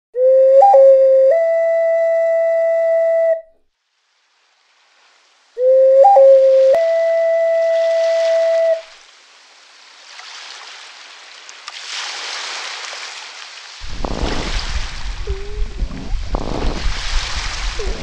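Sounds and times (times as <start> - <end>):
steady whistle-like tone: 0.2 - 3.5, 5.6 - 8.9, 15.2 - 15.8
rushing foaming water: 7.7 - 18.0
rough churning with low rumble: 13.8 - 18.0.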